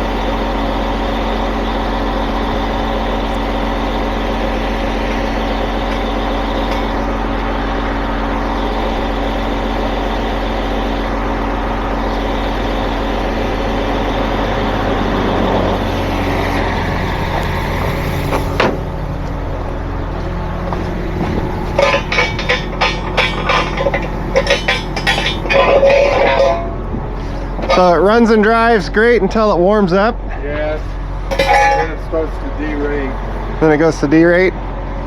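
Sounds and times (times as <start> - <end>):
heavy truck engine idling: 0.0 - 35.0
metal clanks: 4.4 - 7.2, 20.7 - 26.9, 31.3 - 32.2.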